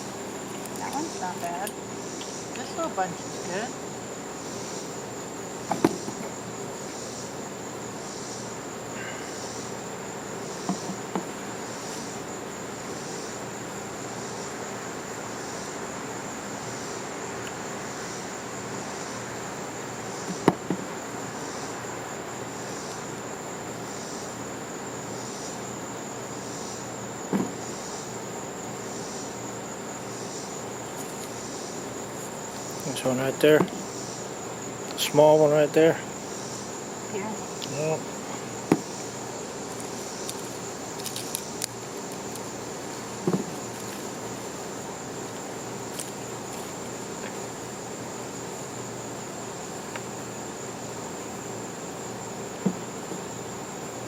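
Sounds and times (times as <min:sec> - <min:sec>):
insect chirping: 0:00.0 - 0:54.0
insect trill: 0:00.0 - 0:54.0
short thud: 0:27.3 - 0:27.6, 0:38.7 - 0:39.0, 0:43.2 - 0:43.6
short knocks: 0:38.7 - 0:39.0, 0:43.2 - 0:43.6.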